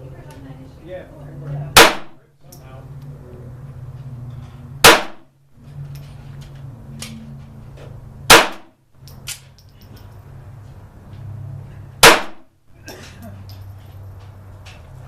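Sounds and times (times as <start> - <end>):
pistol shots: 1.8 - 2.2, 4.8 - 5.3, 8.3 - 8.7, 12.0 - 12.5.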